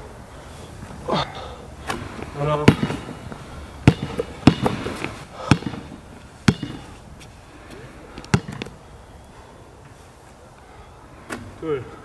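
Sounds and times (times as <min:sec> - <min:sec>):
basketball bouncing on court: 0:02.6 - 0:07.0, 0:08.2 - 0:08.8.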